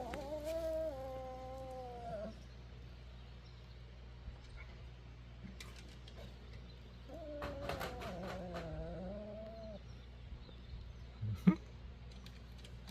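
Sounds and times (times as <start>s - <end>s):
pet growling: 0.0s - 2.4s, 7.1s - 9.8s.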